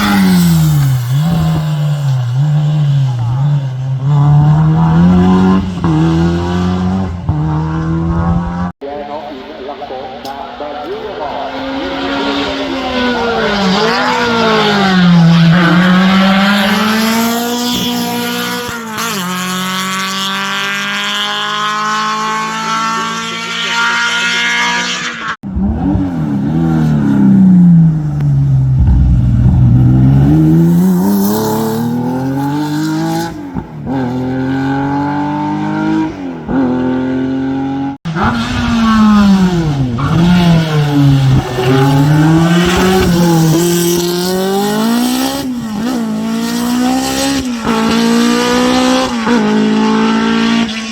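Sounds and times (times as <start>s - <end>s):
race car engines revving: 0.0s - 50.9s.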